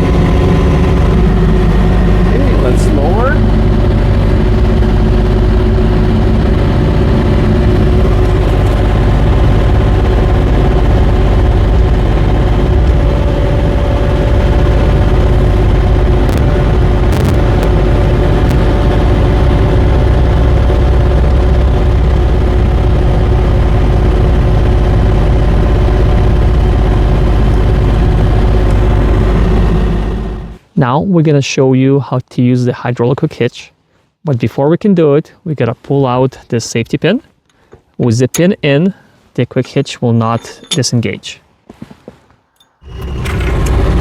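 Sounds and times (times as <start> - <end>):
excavator diesel engine running: 0.0 - 30.7, 42.8 - 44.0.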